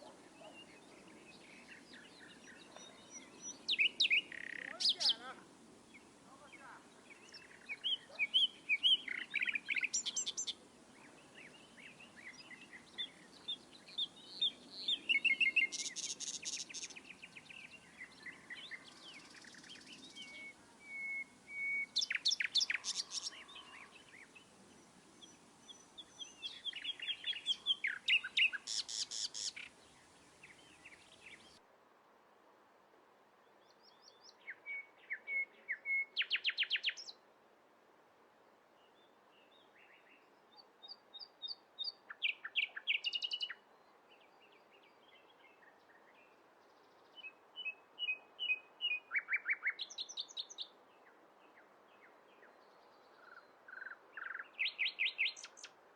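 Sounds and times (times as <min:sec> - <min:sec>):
birds chirping and trilling: 0:00.0 - 0:31.6.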